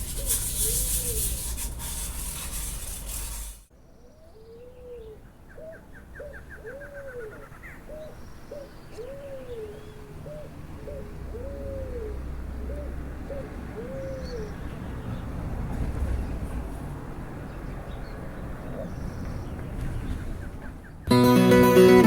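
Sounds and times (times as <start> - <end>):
dove cooing: 8.9 - 14.5.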